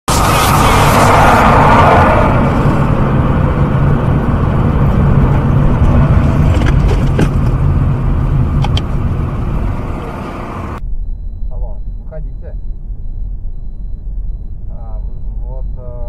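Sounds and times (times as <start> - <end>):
loud rushing noise: 0.0 - 6.5
car engine and road noise: 0.0 - 15.8.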